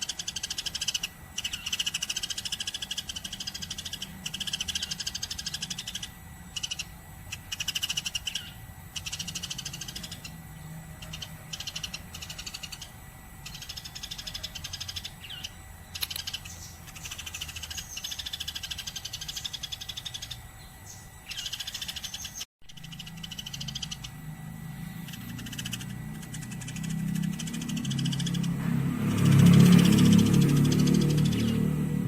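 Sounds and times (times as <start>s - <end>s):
sparrow chirping rapidly: 0.0s - 32.0s.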